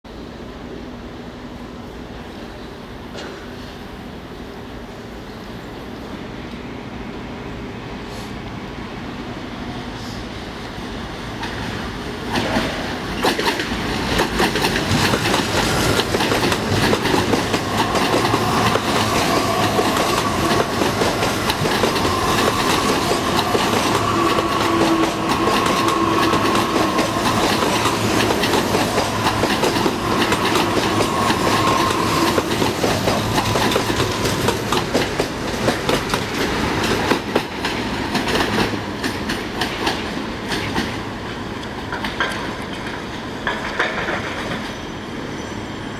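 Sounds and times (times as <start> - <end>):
train wheels clattering over rail joints: 12.3 - 41.0, 41.7 - 44.8.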